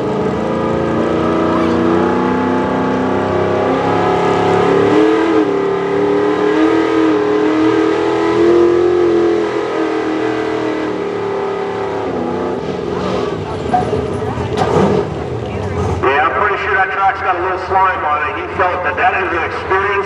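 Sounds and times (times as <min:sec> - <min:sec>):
pulling truck engine at full throttle: 0:00.0 - 0:20.0.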